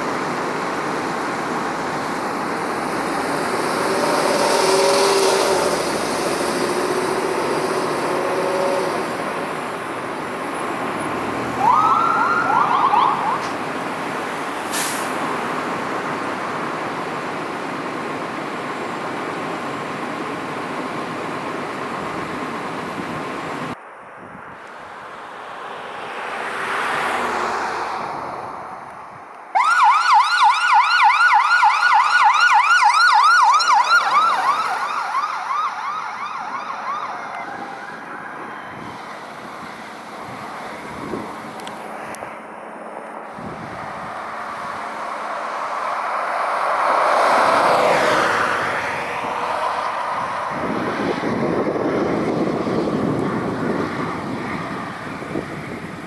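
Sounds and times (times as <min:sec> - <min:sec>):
passing traffic: 0:00.0 - 0:56.0
emergency siren yelping: 0:11.3 - 0:13.8, 0:29.5 - 0:39.1.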